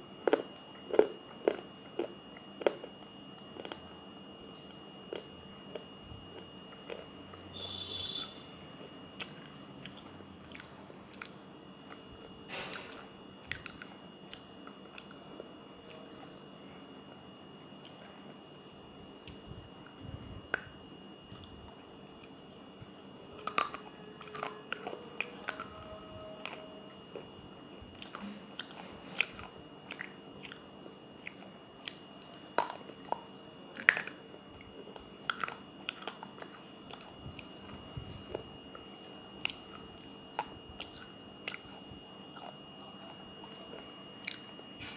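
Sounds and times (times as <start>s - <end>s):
person chewing wet clay cup: 0.2s - 16.3s, 17.7s - 44.9s.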